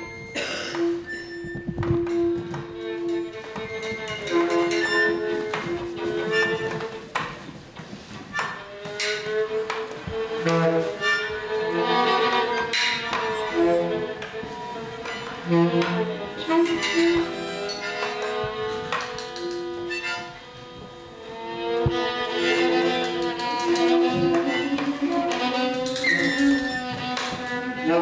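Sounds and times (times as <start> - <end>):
small instrumental ensemble playing: 0.0 - 28.0.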